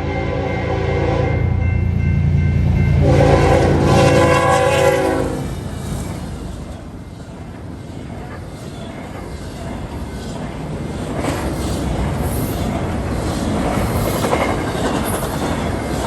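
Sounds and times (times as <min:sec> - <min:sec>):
train horn chord: 0:00.0 - 0:05.6
train rumbling by: 0:00.0 - 0:16.0.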